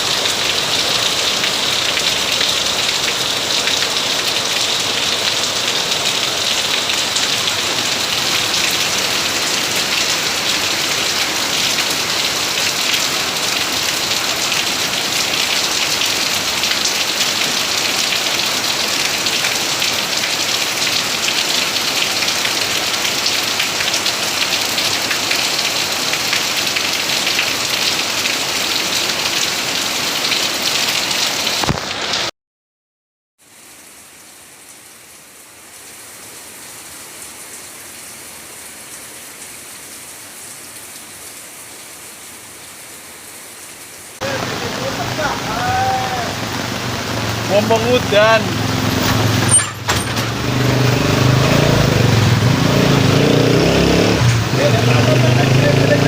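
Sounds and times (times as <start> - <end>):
heavy rain hissing: 0.0 - 32.3, 44.1 - 56.0.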